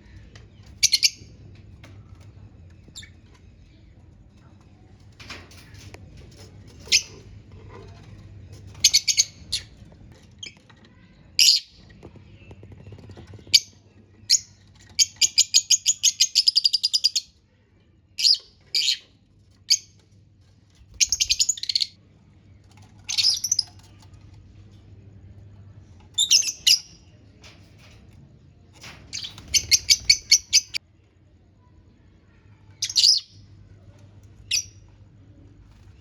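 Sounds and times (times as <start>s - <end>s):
lovebirds chirping: 21.0s - 22.0s, 29.1s - 30.8s.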